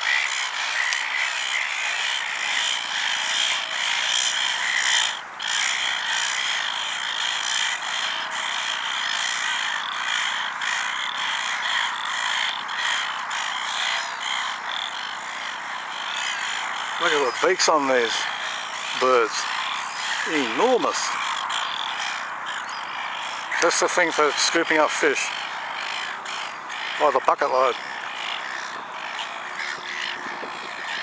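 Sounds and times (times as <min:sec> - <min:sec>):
frogs calling: 0:00.0 - 0:31.0.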